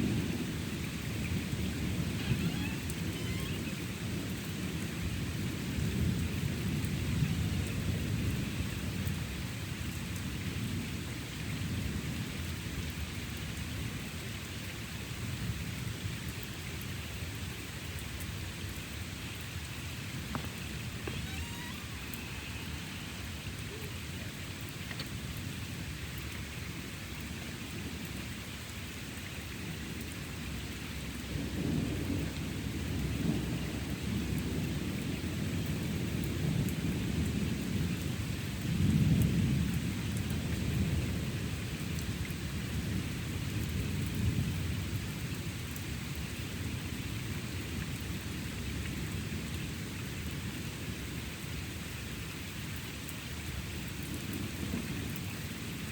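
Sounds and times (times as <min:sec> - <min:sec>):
thunder rumbling: 0:00.0 - 0:09.5
steady rain falling: 0:00.0 - 0:55.9.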